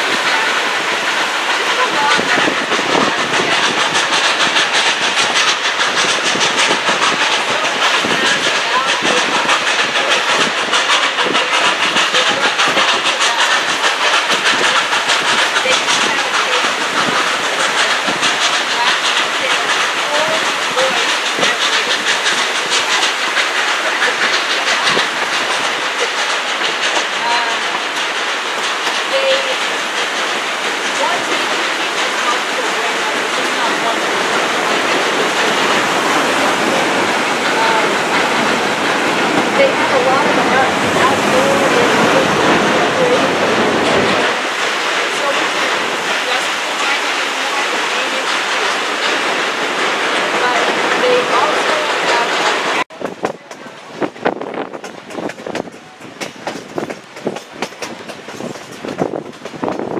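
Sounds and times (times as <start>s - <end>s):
rhythmic train wheel clatter: 0.0s - 59.9s
train rushing noise: 0.0s - 59.9s
river rushing: 27.2s - 52.9s.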